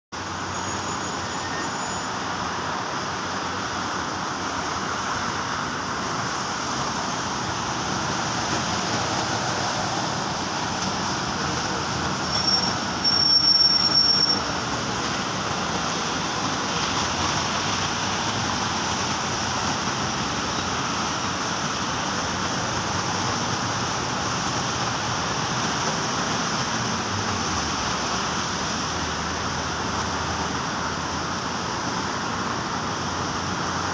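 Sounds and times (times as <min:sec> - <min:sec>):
brief high-pitched squeal: 0:00.4 - 0:02.3, 0:12.2 - 0:14.6
steady rain falling: 0:02.2 - 0:33.9.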